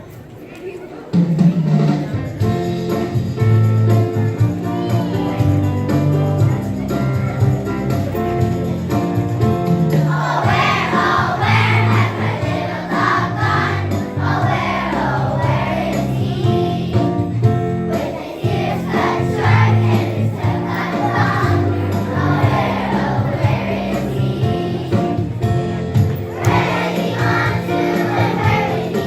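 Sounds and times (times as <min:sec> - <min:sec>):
group of voices singing: 0:09.9 - 0:17.2, 0:17.9 - 0:25.3, 0:26.3 - 0:29.0.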